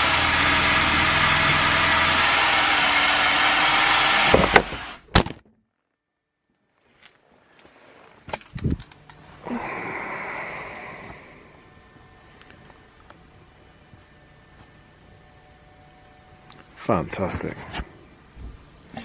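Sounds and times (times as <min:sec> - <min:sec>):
electric drill boring steel: 0:00.0 - 0:05.0.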